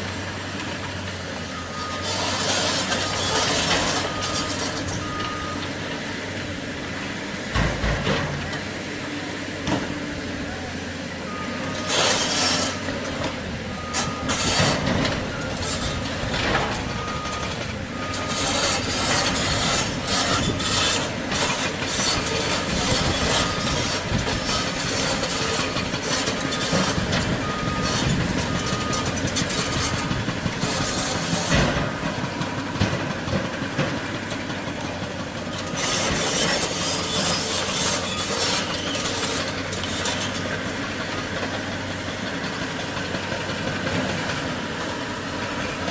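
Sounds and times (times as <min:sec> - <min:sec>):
diesel excavator engine humming: 0:00.0 - 0:45.9
faint beeping alarm: 0:26.6 - 0:30.2.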